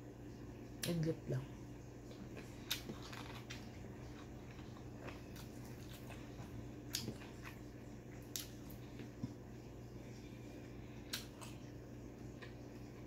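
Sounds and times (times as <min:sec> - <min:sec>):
faint low hum: 0:00.0 - 0:13.0
chewing and biting food: 0:02.1 - 0:09.5.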